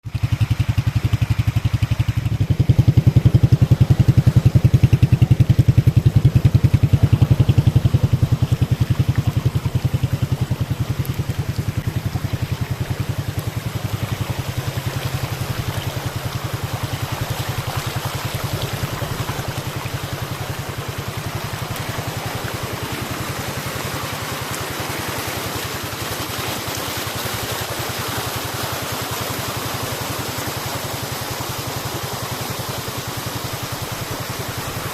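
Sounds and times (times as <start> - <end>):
waterfall rushing and splashing: 0.0 - 34.9.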